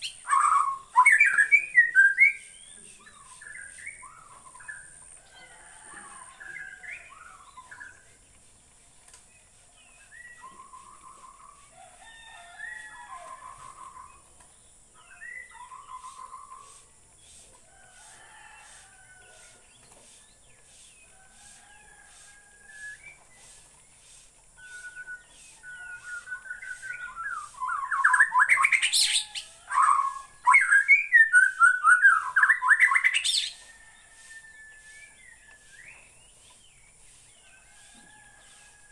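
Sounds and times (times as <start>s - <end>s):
bird singing whistled phrases: 0.0s - 4.9s, 24.6s - 33.6s.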